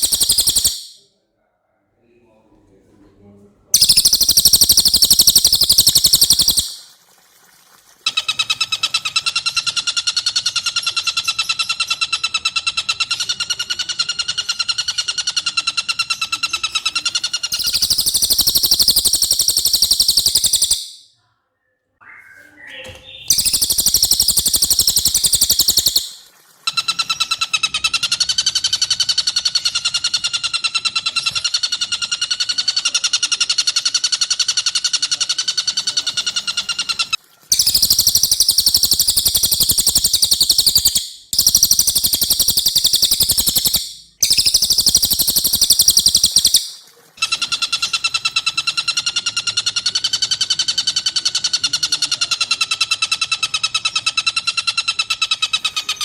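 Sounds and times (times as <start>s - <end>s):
high dense bird chirping: 0.0s - 1.0s, 3.8s - 6.8s, 12.8s - 21.1s, 22.0s - 30.1s, 35.8s - 49.6s
rapid pulsed laughing bird call: 0.0s - 1.0s, 17.5s - 20.9s, 22.2s - 28.4s.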